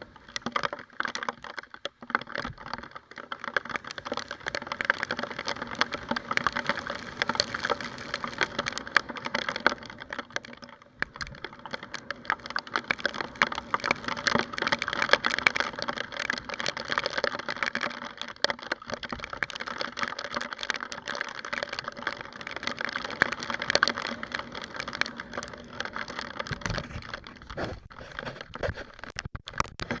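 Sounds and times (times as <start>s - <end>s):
raindrops pattering on camera: 0.0s - 30.0s.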